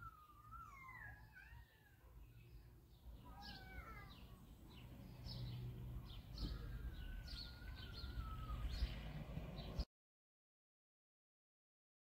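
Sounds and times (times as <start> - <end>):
small songbirds chirping: 0.0 - 9.9
low outdoor rumble: 4.4 - 9.8.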